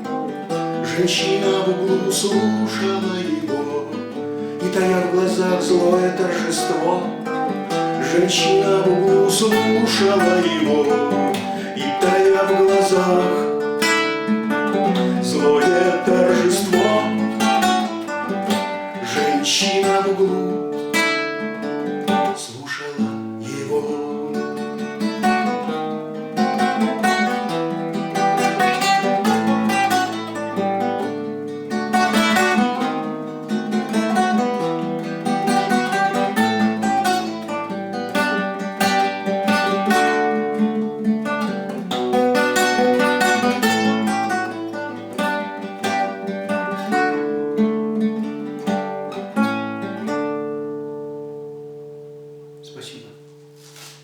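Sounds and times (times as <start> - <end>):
acoustic guitar playing: 0.0 - 54.0.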